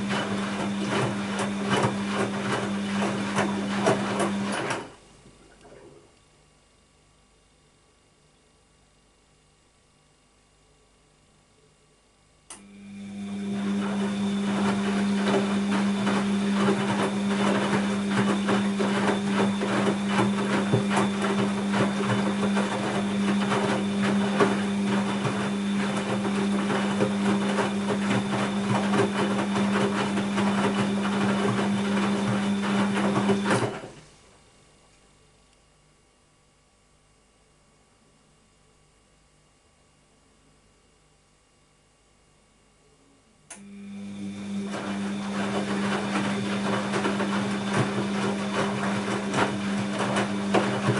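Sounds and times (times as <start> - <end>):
washing machine running: 0.0 - 6.1, 12.5 - 34.4, 43.5 - 50.9
click: 12.5 - 12.7, 43.5 - 43.7.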